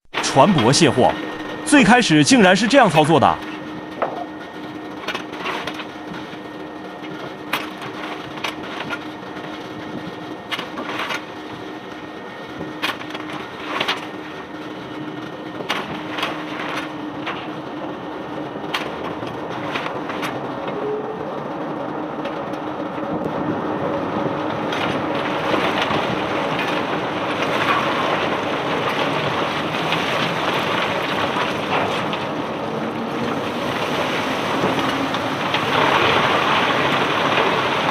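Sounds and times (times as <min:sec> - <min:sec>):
machine hum: 0:00.0 - 0:37.9
clatter of pouring stones: 0:33.5 - 0:37.9.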